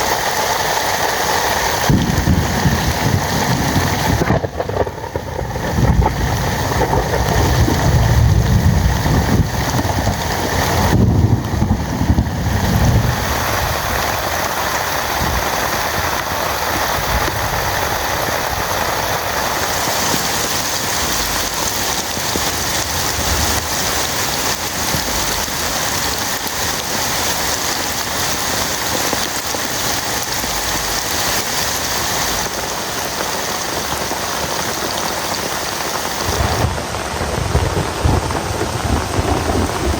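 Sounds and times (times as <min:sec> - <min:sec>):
heavy rain falling: 0:00.0 - 0:39.9
low rumble: 0:01.8 - 0:14.2, 0:36.3 - 0:39.9.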